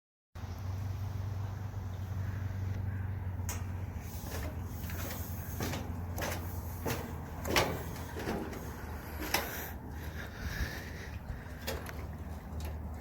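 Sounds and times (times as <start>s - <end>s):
knocks and clunks: 3.5s - 10.2s.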